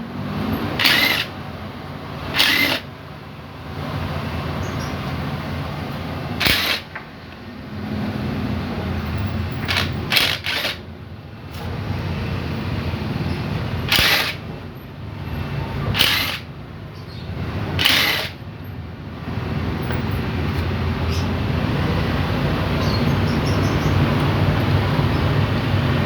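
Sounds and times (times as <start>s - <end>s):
metallic clicks of tools: 13.9s - 14.4s, 16.0s - 16.5s, 17.8s - 18.4s.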